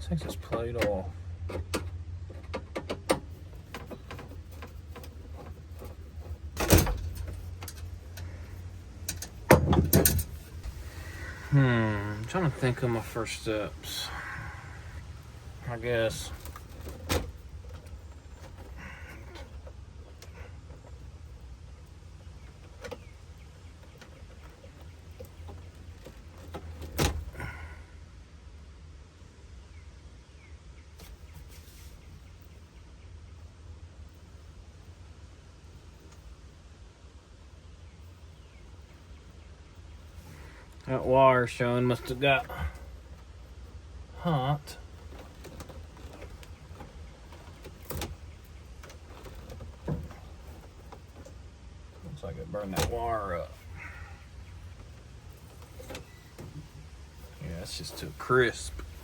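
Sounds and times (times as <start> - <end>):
steady low rumble: 0.0 - 31.0
steady low hum: 0.0 - 59.0
cover plate clicks and rattles: 9.0 - 10.6.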